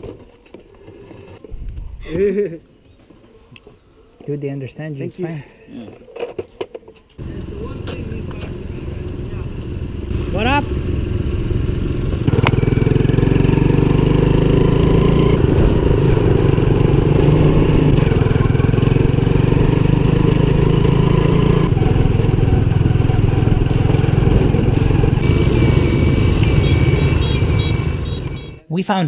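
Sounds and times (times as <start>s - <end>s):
small motorcycle engine running: 7.2s - 28.6s
short high chirping tones: 12.5s - 13.0s, 25.2s - 28.7s.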